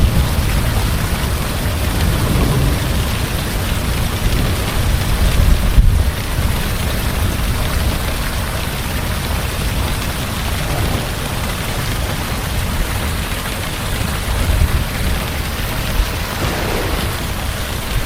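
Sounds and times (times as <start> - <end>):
heavy rain: 0.0 - 18.0
deep low rumble: 0.9 - 6.2.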